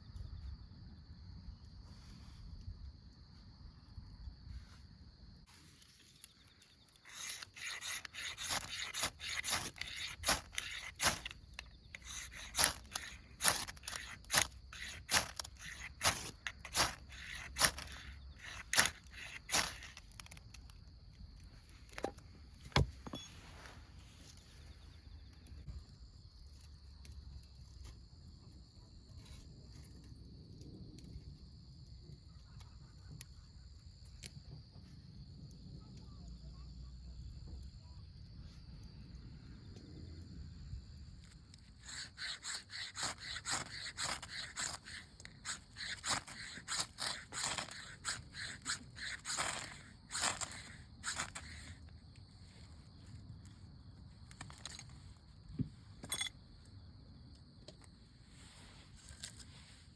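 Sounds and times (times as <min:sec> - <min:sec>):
crickets chirping: 0:00.0 - 0:59.9
quick scraping strokes: 0:06.9 - 0:20.2, 0:41.6 - 0:51.8.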